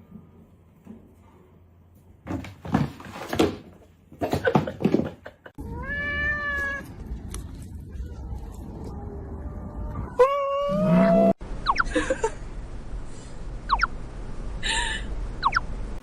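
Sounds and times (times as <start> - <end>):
steady background hum: 6.6 - 16.0.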